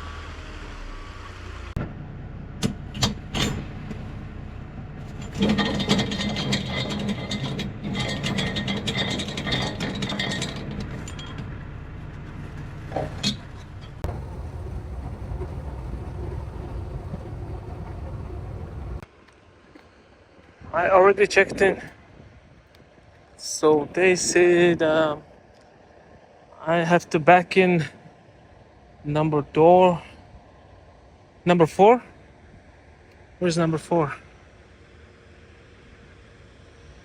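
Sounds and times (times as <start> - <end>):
diesel engine running: 0.0 - 19.0
sharp clicks and knocks: 2.6 - 4.1, 5.0 - 14.2.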